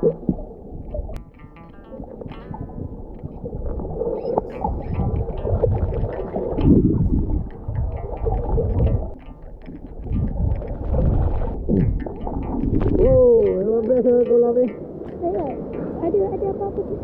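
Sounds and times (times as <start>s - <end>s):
underwater gurgling and bubbling: 0.0s - 13.8s
low rumble: 2.0s - 13.6s.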